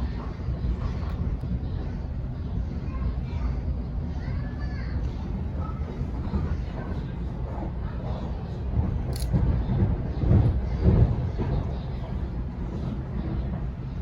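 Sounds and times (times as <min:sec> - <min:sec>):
train wheels rumbling on track: 0:00.0 - 0:14.0
sharp click: 0:09.1 - 0:09.3.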